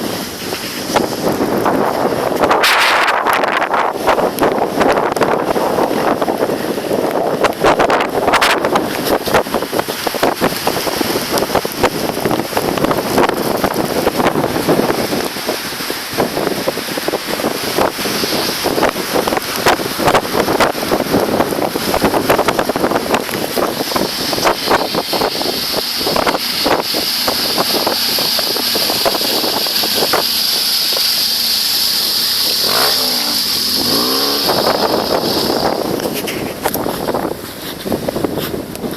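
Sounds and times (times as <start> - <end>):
motorcycle engine revving past: 32.5 - 35.5.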